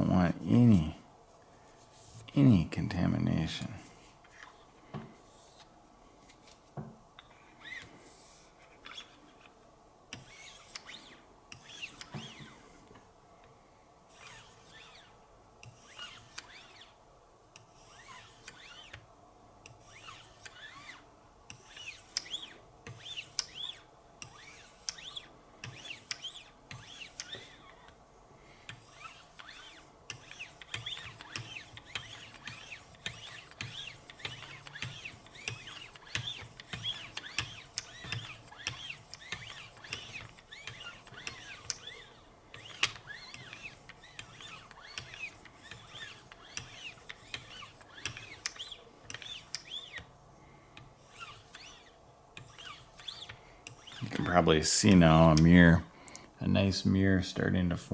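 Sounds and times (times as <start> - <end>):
sharpener scraping knife edge: 28.8 - 50.0.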